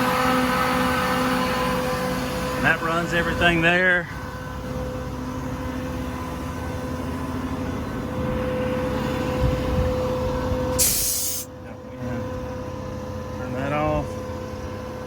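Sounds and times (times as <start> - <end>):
air compressor humming: 4.0 - 11.6
air hissing burst: 10.7 - 11.5.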